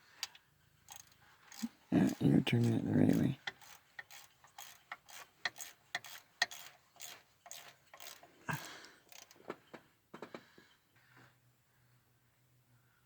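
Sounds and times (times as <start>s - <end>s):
ratchet wrench clicking: 0.2s - 9.4s.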